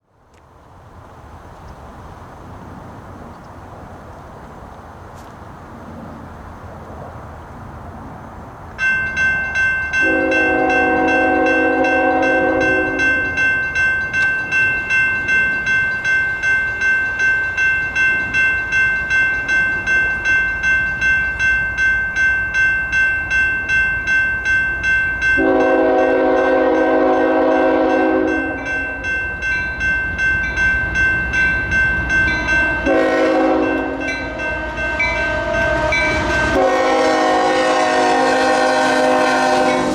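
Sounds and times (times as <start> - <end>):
low train rumble: 0.1 - 39.9
electronic crossing bell ringing: 8.8 - 37.4
train horn blasts: 10.0 - 13.4, 25.4 - 28.9, 32.6 - 39.9.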